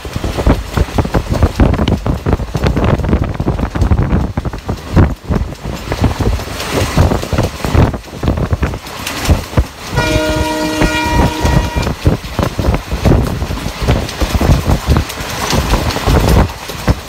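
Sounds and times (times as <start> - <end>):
train rumbling: 0.0 - 17.0
train horn: 9.9 - 12.1.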